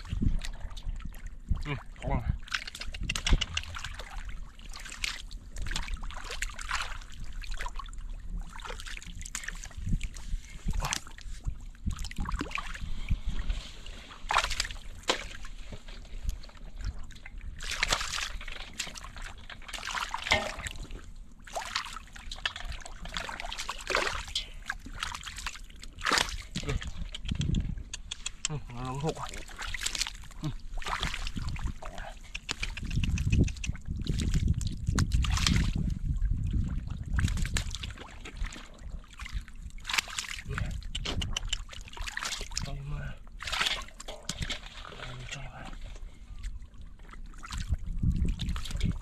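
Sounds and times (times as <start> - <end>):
water sloshing and splashing: 0.0 - 49.0
water trickling: 16.5 - 27.1.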